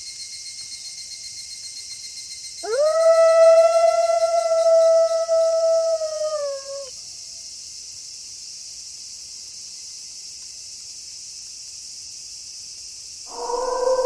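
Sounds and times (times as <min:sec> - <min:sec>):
night insects chorus: 0:00.0 - 0:14.0
wolf howling: 0:02.6 - 0:06.9, 0:13.3 - 0:14.0.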